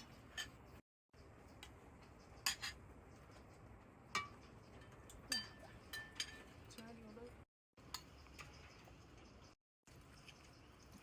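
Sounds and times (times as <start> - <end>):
dishware clinking: 4.2 - 6.6.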